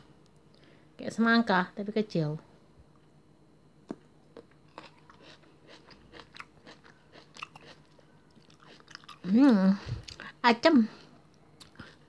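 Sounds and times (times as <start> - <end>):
fruit being bitten and chewed: 3.8 - 9.3.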